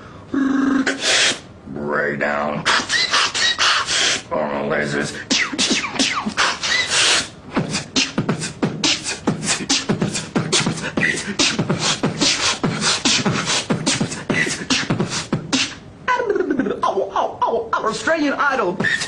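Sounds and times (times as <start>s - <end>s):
man beatboxing: 0.3s - 1.4s, 2.6s - 4.3s, 4.9s - 15.9s, 18.7s - 19.0s.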